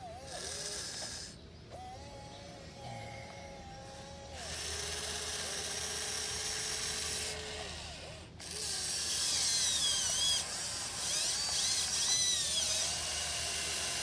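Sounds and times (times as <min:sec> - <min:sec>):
electric motors whining: 0:00.0 - 0:14.0.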